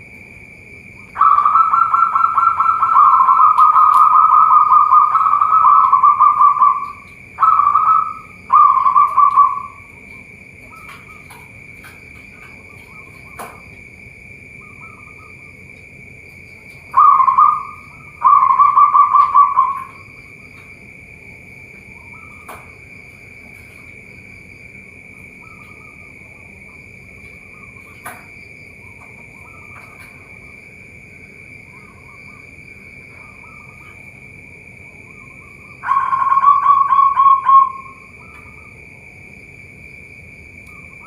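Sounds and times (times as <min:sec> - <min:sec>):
doves cooing: 0:00.9 - 0:38.9
high-pitched drone: 0:01.0 - 0:10.1, 0:16.9 - 0:20.4, 0:34.9 - 0:38.7.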